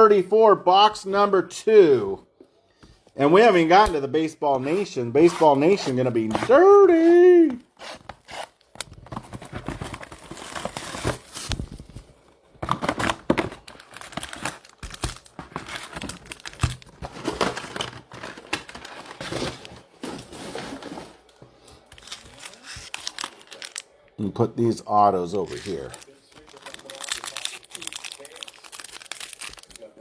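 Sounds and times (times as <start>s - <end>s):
foil wrappers tearing and crinkling: 4.6s - 11.8s, 12.7s - 24.0s, 25.3s - 30.0s.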